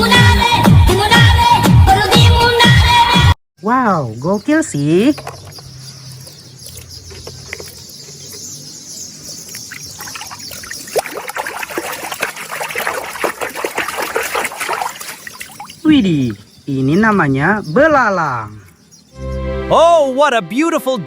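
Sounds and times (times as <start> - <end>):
water trickling and splashing: 4.2 - 18.9.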